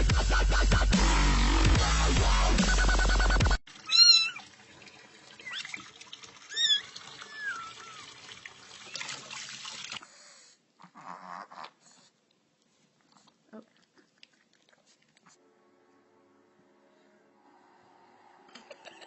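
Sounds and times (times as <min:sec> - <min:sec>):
cat meowing: 0:03.9 - 0:04.4.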